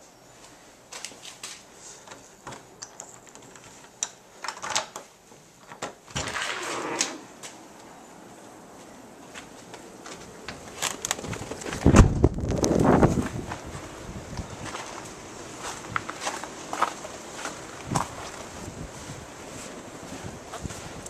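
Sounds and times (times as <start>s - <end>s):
small clicks and knocks: 0.9s - 6.2s.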